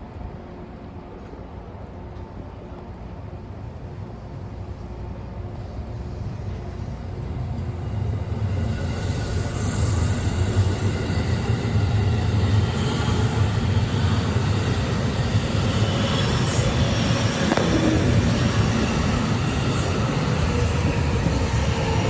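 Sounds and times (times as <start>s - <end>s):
electric train pulling away: 7.8s - 22.0s.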